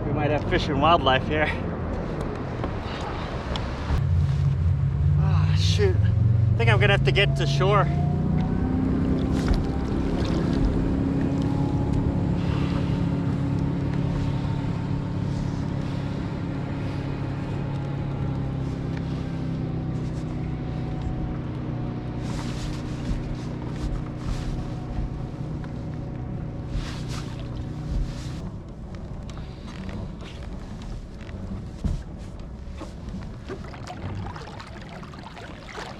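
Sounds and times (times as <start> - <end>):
motorboat engine humming: 0.0 - 35.9
short knocks or splashes: 33.4 - 35.9.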